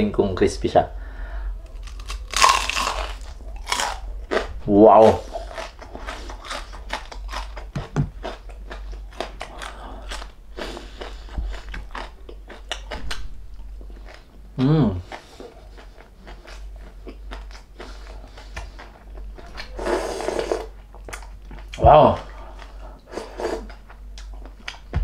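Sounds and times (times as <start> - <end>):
crispy pork skin crunching: 1.6 - 13.2.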